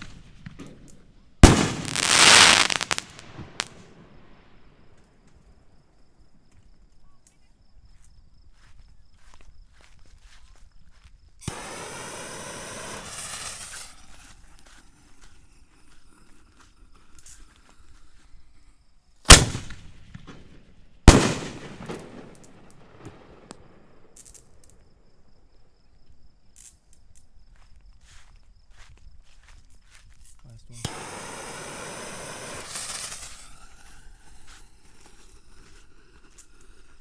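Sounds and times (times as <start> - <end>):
loud sharp firework bangs: 0.0 - 4.8, 11.5 - 14.3, 19.3 - 24.4, 30.8 - 34.3
firework shell hissing rush: 1.4 - 4.6, 11.4 - 14.6, 21.1 - 22.6, 30.7 - 36.8.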